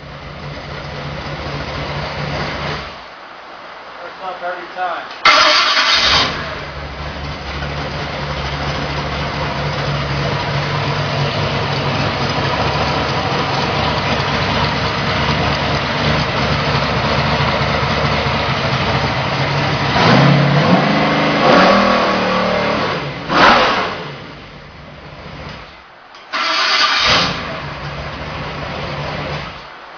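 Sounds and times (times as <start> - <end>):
car engine idling and revving: 0.0 - 3.1, 5.2 - 29.9.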